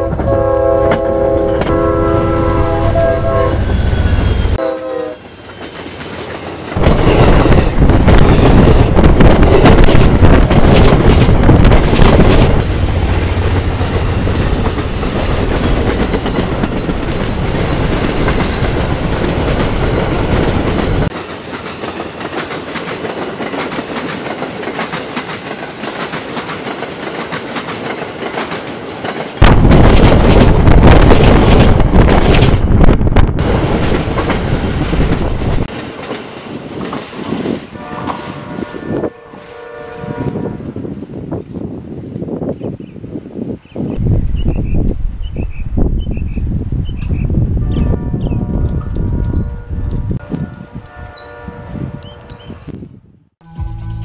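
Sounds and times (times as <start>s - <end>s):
train horn chord: 0.0s - 3.8s, 4.6s - 5.2s, 37.8s - 40.8s, 47.6s - 52.5s, 53.4s - 54.0s
train wheels rumbling on rail: 0.0s - 52.9s.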